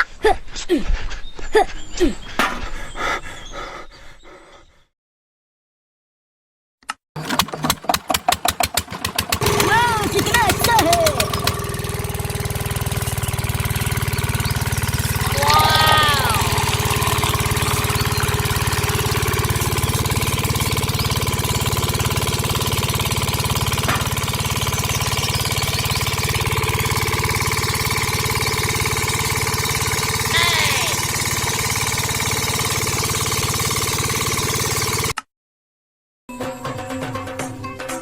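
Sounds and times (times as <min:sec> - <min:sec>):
small motor running with whine: 0:09.3 - 0:35.2
short voice-like call: 0:15.2 - 0:16.6, 0:30.3 - 0:31.0.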